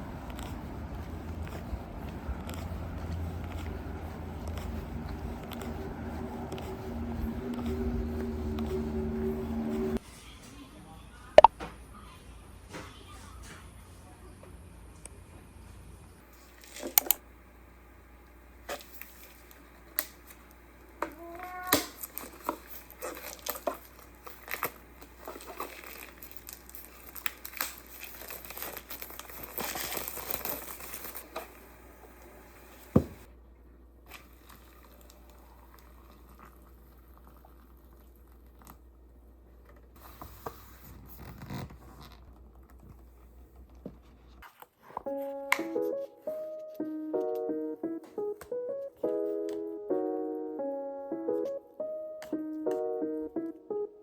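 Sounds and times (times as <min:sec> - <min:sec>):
plastic or paper crinkling: 0:21.9 - 0:31.6
music notes: 0:45.1 - 0:54.0.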